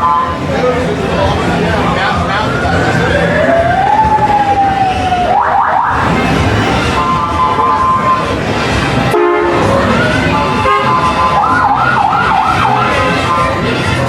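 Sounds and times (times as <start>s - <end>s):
street noise: 0.0s - 14.0s
siren wailing and yelping: 2.1s - 6.2s, 9.2s - 13.7s.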